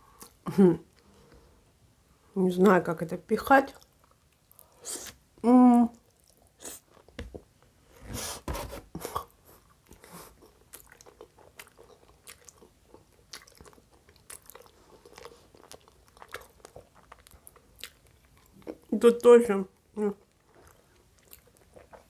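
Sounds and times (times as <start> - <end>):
person chewing food: 9.0 - 18.9, 19.8 - 22.0.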